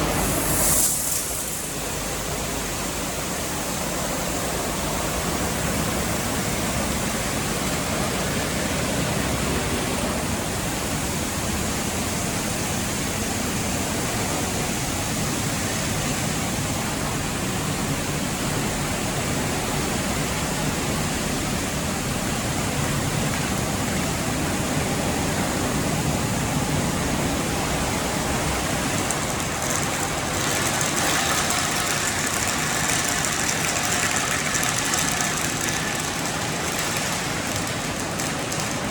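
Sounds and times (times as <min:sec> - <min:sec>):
high hiss: 0:00.0 - 0:02.3
spraying water: 0:00.0 - 0:03.4, 0:27.9 - 0:38.9
car wash machinery noise: 0:00.0 - 0:38.9.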